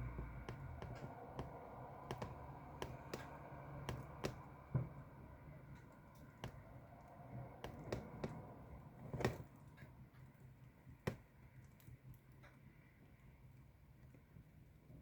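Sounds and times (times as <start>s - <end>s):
faint low rumble: 0.0s - 9.0s.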